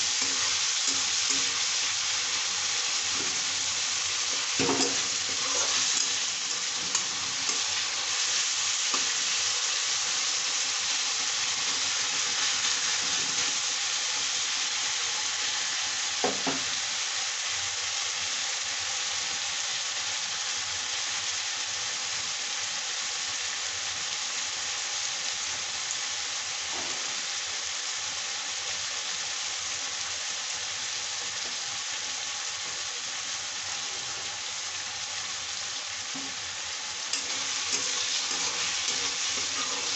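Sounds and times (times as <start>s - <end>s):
onions sizzling in hot oil: 0.0s - 39.9s.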